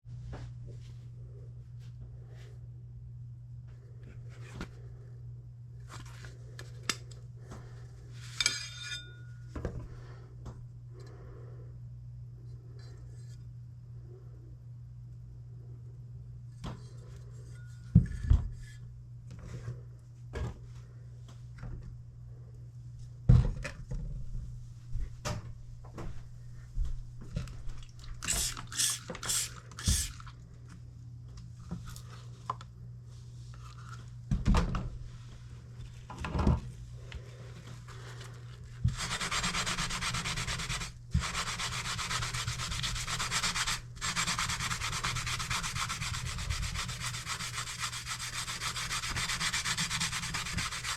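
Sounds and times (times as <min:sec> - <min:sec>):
short hissing bursts: 0:28.3 - 0:30.1.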